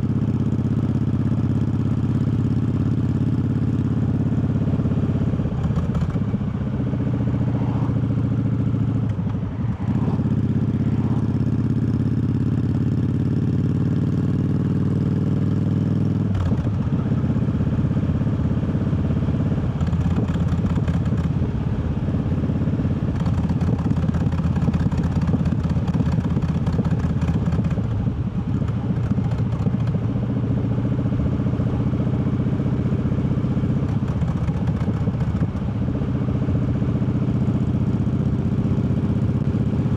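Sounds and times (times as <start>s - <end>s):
motorcycle engine changing gear: 19.7s - 21.4s, 23.1s - 30.2s, 33.7s - 35.8s.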